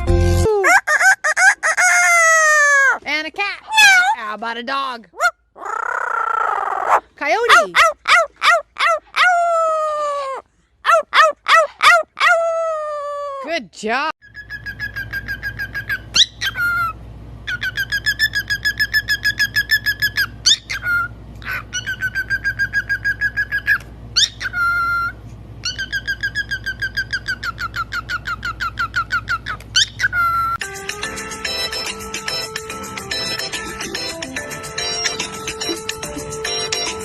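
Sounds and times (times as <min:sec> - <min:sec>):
parrot calling in repeated notes: 0:14.2 - 0:30.6.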